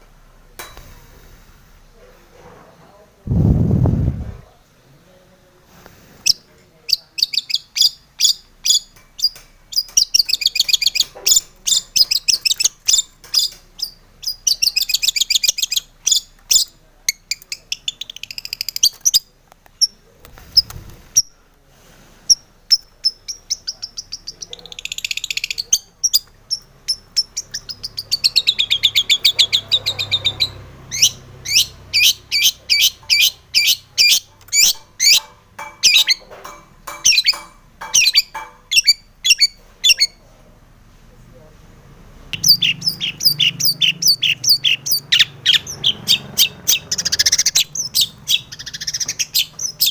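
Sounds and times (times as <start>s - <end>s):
bird singing with chattering trills: 6.3s - 20.0s, 22.3s - 36.2s, 36.9s - 40.2s, 42.4s - 49.9s.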